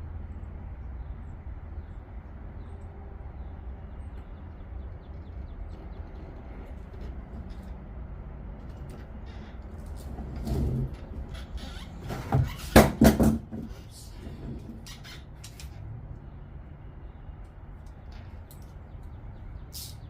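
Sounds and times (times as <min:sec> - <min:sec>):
low outdoor rumble: 0:00.0 - 0:20.0
faint bird chirps: 0:19.0 - 0:20.0.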